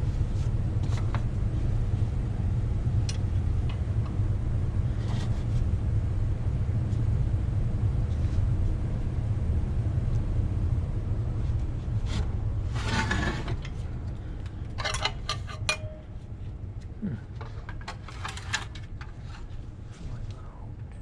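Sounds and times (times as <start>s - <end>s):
low rumble: 0.0s - 14.8s
metal tools and bolts clinking: 14.7s - 16.1s.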